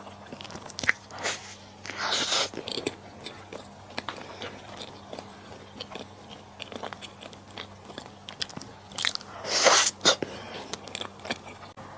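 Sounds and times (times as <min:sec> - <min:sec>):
chewing with crunches: 0:00.0 - 0:11.8
loud slurp: 0:09.4 - 0:10.3.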